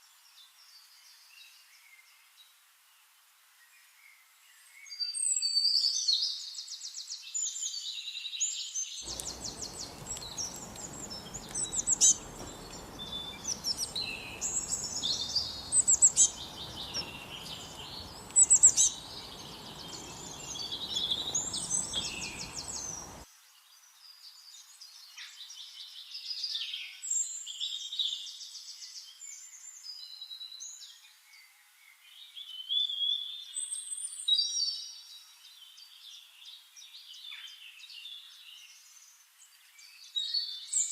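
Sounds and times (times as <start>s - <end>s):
songbirds singing and chirping: 7.5s - 23.3s
steady background hiss: 9.0s - 23.3s.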